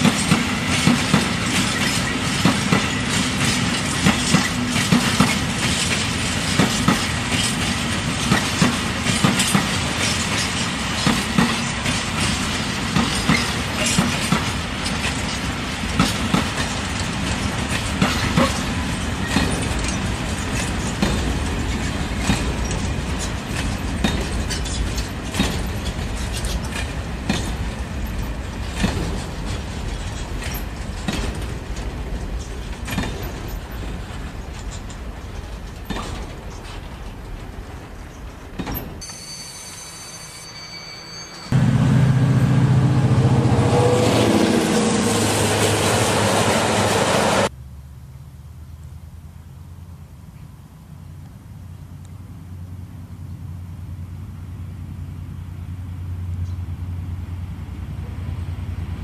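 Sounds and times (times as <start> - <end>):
wheels clicking over rail joints: 0.0 - 39.2
freight train rolling past: 0.0 - 47.5, 51.6 - 59.0.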